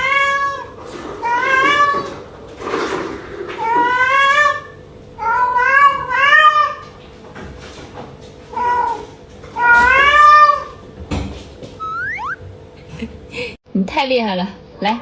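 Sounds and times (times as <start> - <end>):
cat meowing loudly: 9.6 - 10.7.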